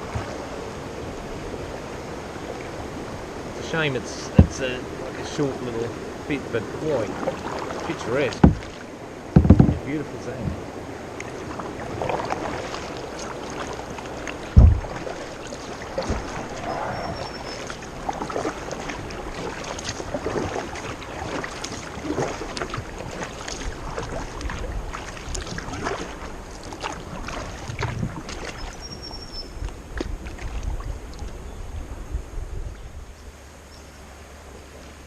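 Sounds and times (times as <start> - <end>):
paddle splashing in water: 0.0 - 31.4
heavy thump: 4.3 - 4.7, 8.3 - 8.7, 9.4 - 10.6, 14.5 - 15.0.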